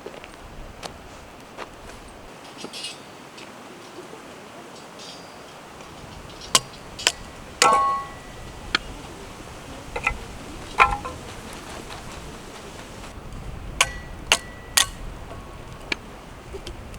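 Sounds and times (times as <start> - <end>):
steady low background noise: 0.0 - 16.9
hard objects clinking: 5.9 - 8.9, 10.0 - 13.1.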